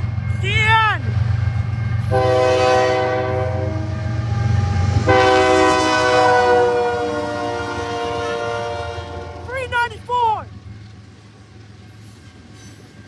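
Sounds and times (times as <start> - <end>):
passing train rumble: 0.0 - 13.0
locomotive horn blasts: 2.1 - 9.7.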